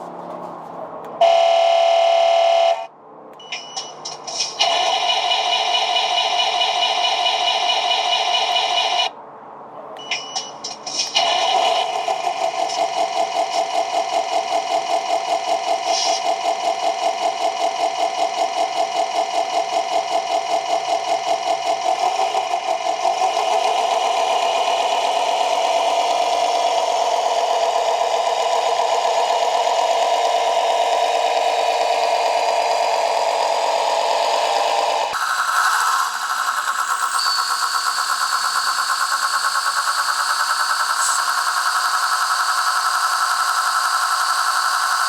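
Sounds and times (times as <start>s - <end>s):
model bulldozer motor whining: 14.6s - 45.0s.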